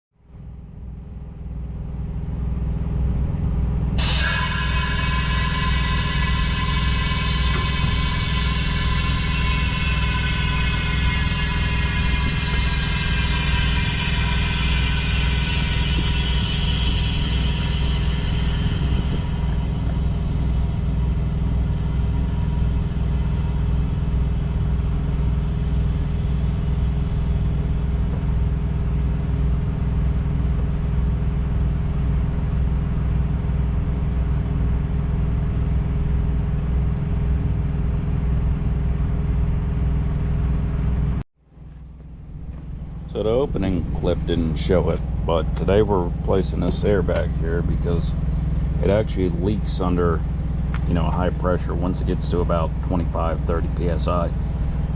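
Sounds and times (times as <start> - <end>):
high-pitched whine: 0.4 - 41.2, 42.3 - 54.9
diesel engine idling: 3.9 - 29.9.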